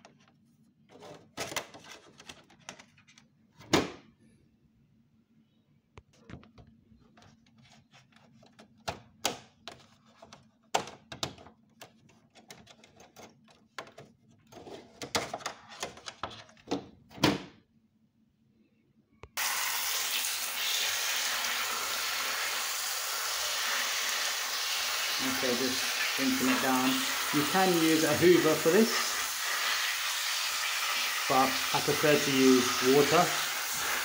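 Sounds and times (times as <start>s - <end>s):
plastic clicks and knocks: 8.4s - 14.2s
tap water running with hiss: 19.4s - 34.0s.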